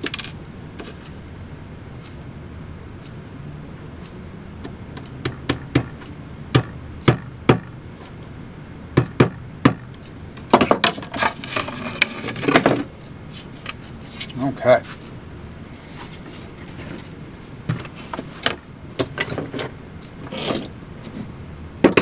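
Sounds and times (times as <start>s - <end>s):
small hammer tapping tacks: 5.0s - 7.7s.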